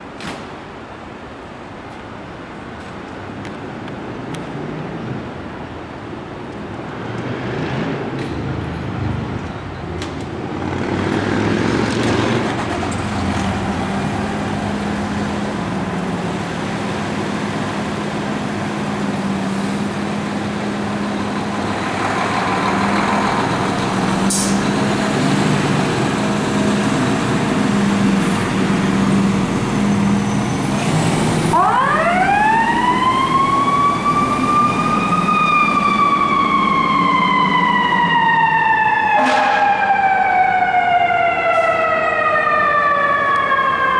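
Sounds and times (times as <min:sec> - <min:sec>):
fire truck engine running: 0:12.4 - 0:43.9
mechanical siren wailing: 0:31.5 - 0:43.9.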